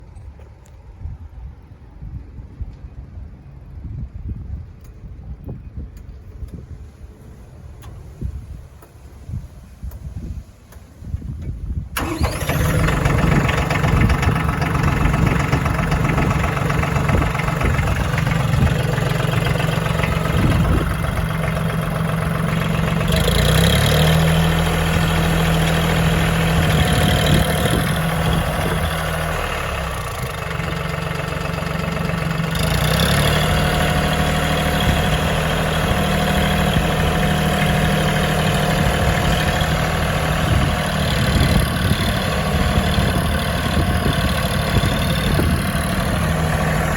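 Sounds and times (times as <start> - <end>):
tractor engine idling: 12.0 - 46.9.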